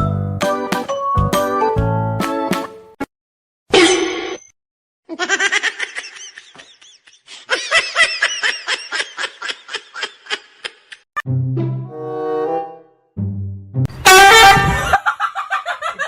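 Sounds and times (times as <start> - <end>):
person laughing hard: 5.1 - 11.0, 14.3 - 16.0.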